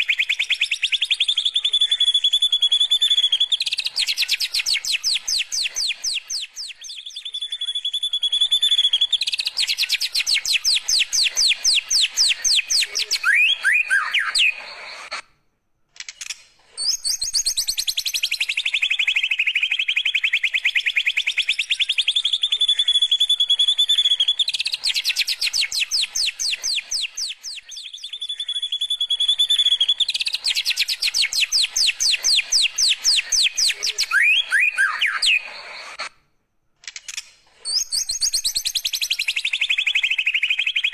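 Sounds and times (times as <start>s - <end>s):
bird singing rapid trills: 0.0s - 14.9s, 16.8s - 36.0s, 37.7s - 40.9s.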